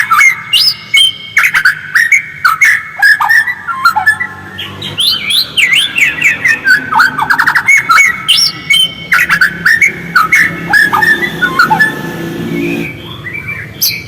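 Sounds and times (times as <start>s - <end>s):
bird singing whistles and chirps: 0.0s - 14.0s.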